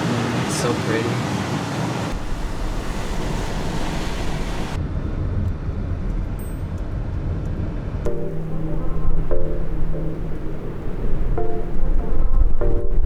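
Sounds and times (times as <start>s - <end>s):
tyre and road noise: 0.0s - 6.8s
low car rumble: 2.1s - 6.2s, 8.1s - 13.0s
music: 8.1s - 13.0s.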